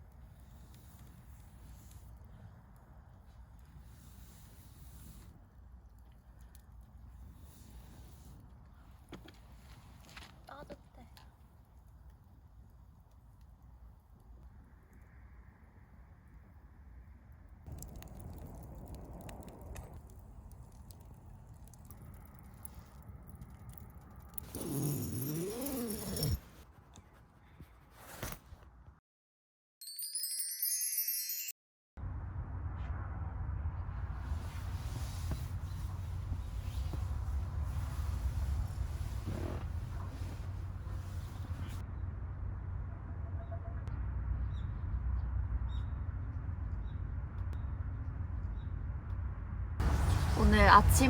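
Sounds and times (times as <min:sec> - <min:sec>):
steady low rumble: 0:11.4 - 0:24.3, 0:32.0 - 0:51.0
glittering chime effect: 0:29.8 - 0:31.6.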